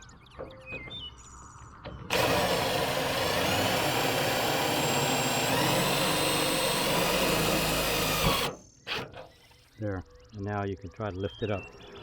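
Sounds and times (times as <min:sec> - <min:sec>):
power drill whining: 0:02.1 - 0:09.0.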